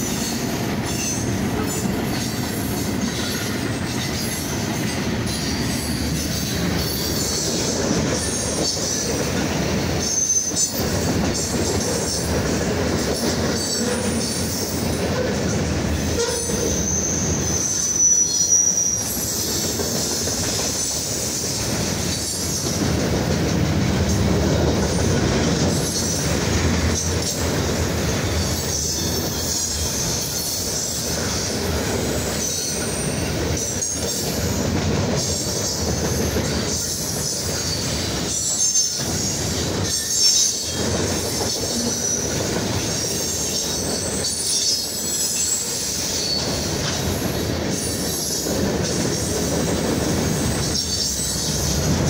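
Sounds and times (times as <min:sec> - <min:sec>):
freight train rumbling on rails: 0:00.0 - 0:52.0
high-pitched wheel squeal: 0:16.0 - 0:21.0.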